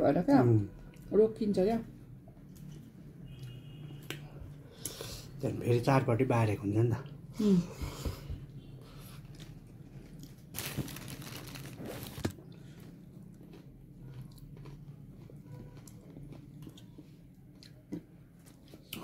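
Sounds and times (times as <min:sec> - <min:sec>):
person chewing and crunching food: 0:08.9 - 0:19.0.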